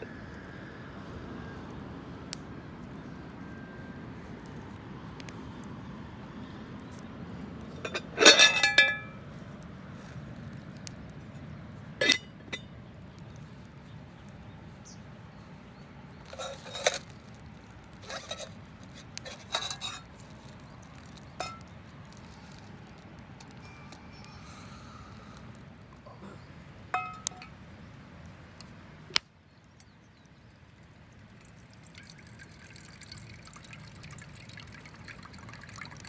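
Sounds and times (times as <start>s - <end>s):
metal cookware clinking: 7.8s - 9.2s, 12.0s - 12.7s, 16.3s - 17.1s, 18.1s - 18.5s, 19.2s - 20.1s, 21.4s - 21.7s, 27.0s - 27.5s
loud ringing metal clank: 7.9s - 9.2s.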